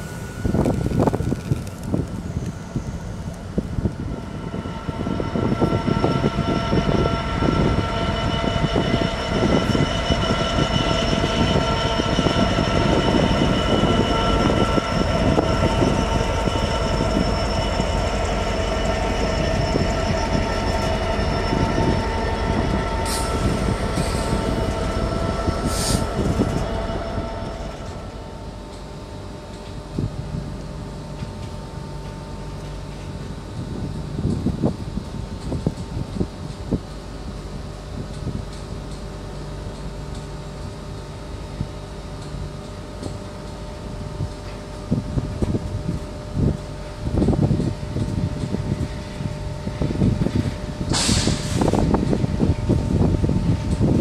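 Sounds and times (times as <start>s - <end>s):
high whining tones: 0.0s - 29.3s.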